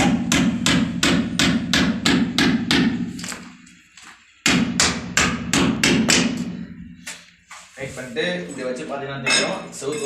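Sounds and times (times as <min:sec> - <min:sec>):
hammer hitting nail: 0:00.0 - 0:03.0, 0:04.4 - 0:06.5.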